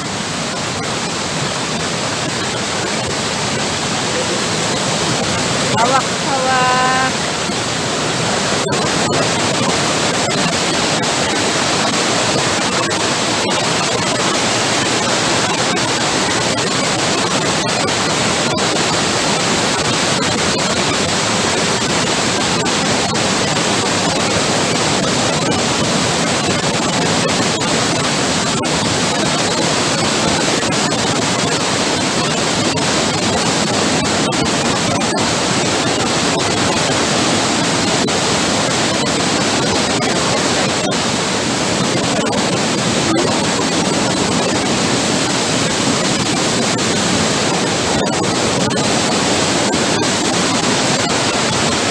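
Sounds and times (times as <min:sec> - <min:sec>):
waterfall rushing: 0:01.3 - 0:13.5.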